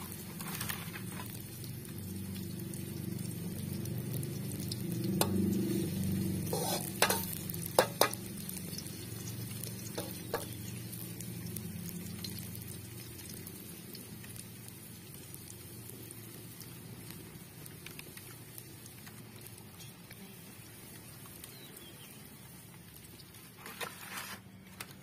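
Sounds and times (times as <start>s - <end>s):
frying hiss in wok: 0.0s - 25.0s
metal spatula knocking on pan: 6.6s - 8.2s.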